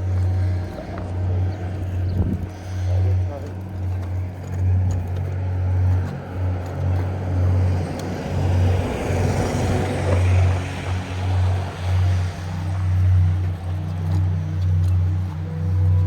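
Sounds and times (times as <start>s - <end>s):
low pulsing rumble: 0.0s - 16.0s
vehicle passing: 0.0s - 16.0s.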